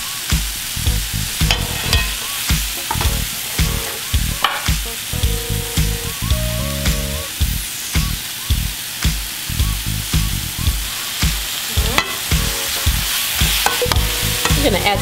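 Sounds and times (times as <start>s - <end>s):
background music with steady beat: 0.0s - 15.0s
squash sizzling in butter: 0.0s - 15.0s
metal tongs tossing food: 1.4s - 3.2s, 11.1s - 15.0s.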